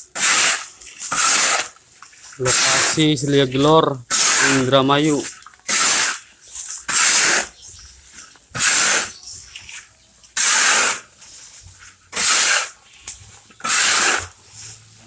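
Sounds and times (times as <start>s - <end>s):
hot sand swishing in a wok: 0.0s - 7.7s, 8.6s - 15.0s
scraping in a wok: 4.1s - 15.0s.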